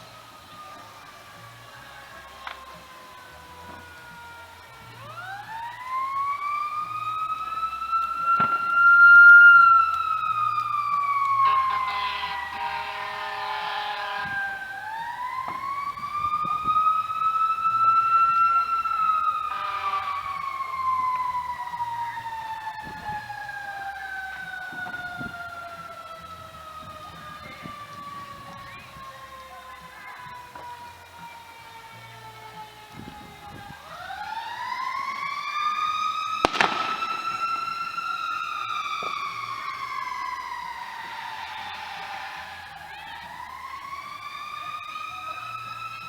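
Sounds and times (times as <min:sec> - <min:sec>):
emergency siren wailing: 0:00.0 - 0:46.0
vehicle horn blast: 0:11.4 - 0:14.7, 0:19.4 - 0:20.4.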